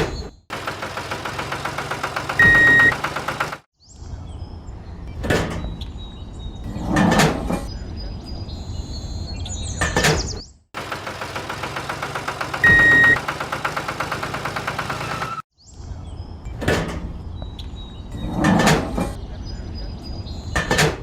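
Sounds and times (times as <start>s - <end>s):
small tractor motor running: 0.5s - 3.7s, 10.8s - 15.4s
knocks and scrapes: 6.6s - 7.7s, 18.1s - 19.2s.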